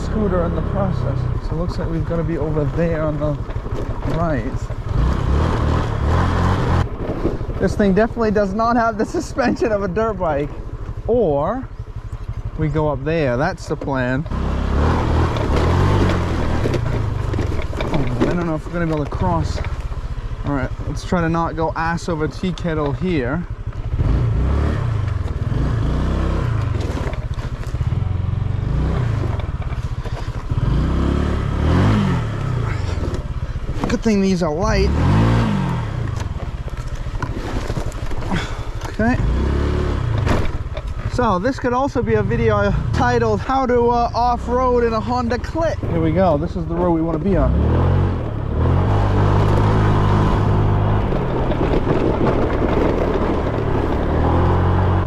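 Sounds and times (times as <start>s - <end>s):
knocks and rattles: 0.0s - 11.0s, 13.4s - 23.8s, 26.5s - 27.9s, 29.0s - 30.6s, 32.6s - 34.9s, 35.7s - 39.4s, 40.1s - 42.0s, 48.2s - 54.9s
rough road noise: 0.0s - 55.0s
scooter engine running: 0.0s - 55.0s.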